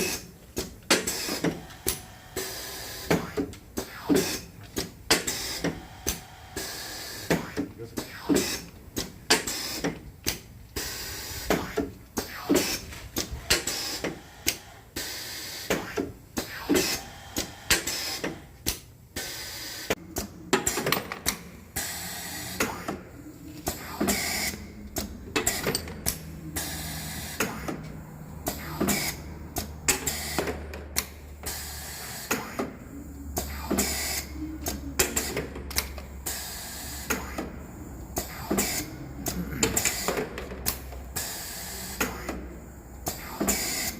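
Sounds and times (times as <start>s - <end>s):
low machine hum: 21.3s - 43.0s.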